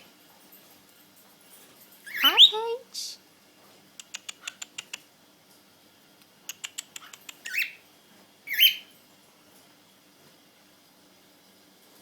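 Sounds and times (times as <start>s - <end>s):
cockatiel harsh chirps: 2.1s - 2.6s, 6.9s - 7.8s, 8.5s - 8.9s
cockatiel clicks: 4.0s - 5.1s, 6.5s - 7.6s.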